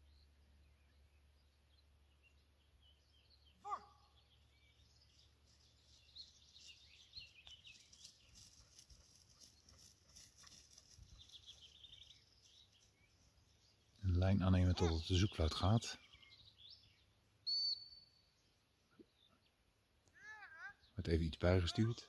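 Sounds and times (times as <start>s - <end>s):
faint birdsong chirps: 0.0s - 22.0s
loud bird call: 3.6s - 4.2s.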